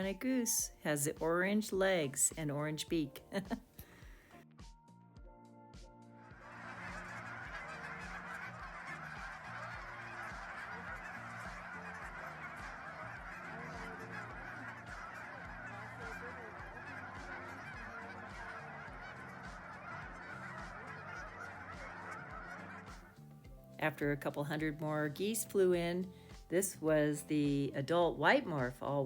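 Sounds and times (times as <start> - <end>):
geese honking: 6.2 - 29.0.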